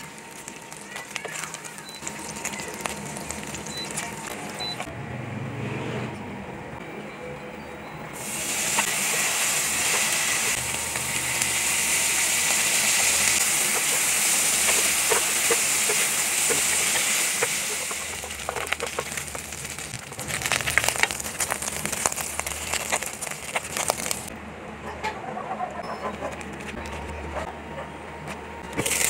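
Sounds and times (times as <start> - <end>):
meat sizzling in a pan: 0.0 - 4.8, 8.2 - 24.3, 28.8 - 29.0.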